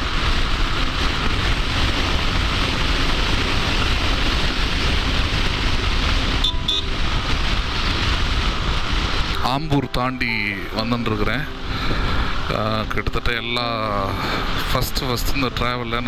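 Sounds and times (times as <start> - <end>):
motorcycle engine rumble: 0.0 - 14.7
road noise: 0.0 - 16.0
wind rush on microphone: 0.0 - 16.0
two-note beep: 9.7 - 11.0.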